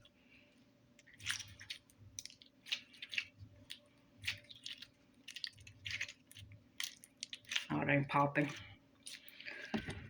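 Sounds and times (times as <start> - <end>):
slime squelching: 0.0 - 10.0.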